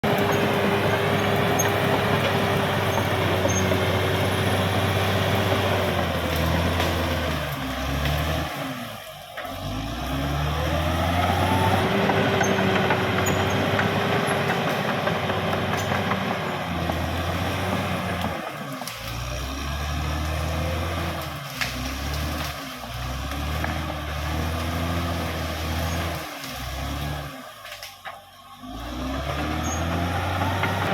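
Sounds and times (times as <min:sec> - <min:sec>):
bulldozer diesel engine running: 0:00.0 - 0:30.9.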